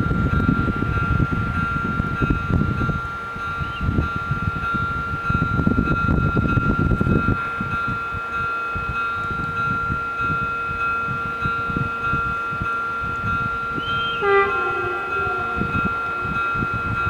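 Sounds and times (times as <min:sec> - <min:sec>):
level crossing warning bells: 0:00.0 - 0:17.0
train horn: 0:13.1 - 0:17.0.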